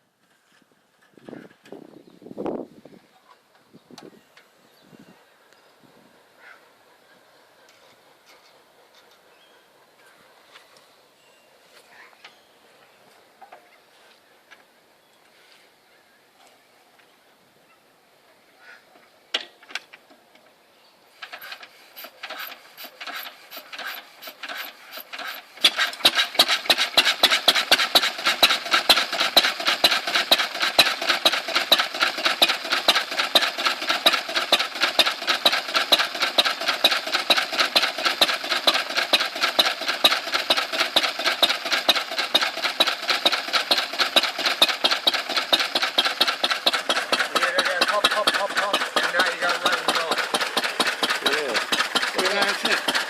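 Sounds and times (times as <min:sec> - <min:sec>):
stationary engine starting and running: 0:21.2 - 0:53.0.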